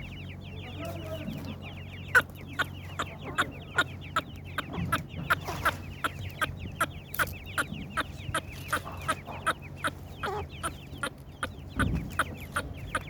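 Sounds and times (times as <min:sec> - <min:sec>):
partridge chicks cheeping: 0:00.0 - 0:13.0
sharp loud ticks: 0:03.8 - 0:07.7.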